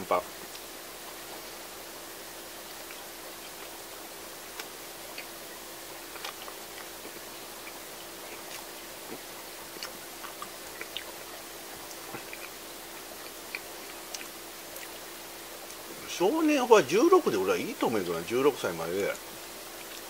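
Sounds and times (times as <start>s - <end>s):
background hiss and hum: 0.0s - 20.0s
person chewing soft bread: 2.6s - 16.0s, 19.2s - 20.0s.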